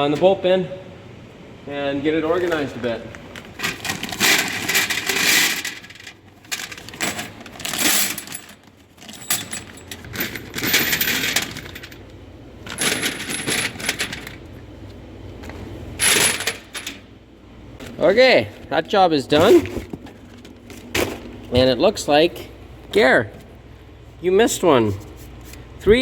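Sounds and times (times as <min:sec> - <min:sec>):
steel bolts clattering into bin: 0:03.6 - 0:12.0, 0:12.6 - 0:14.4, 0:16.0 - 0:17.0.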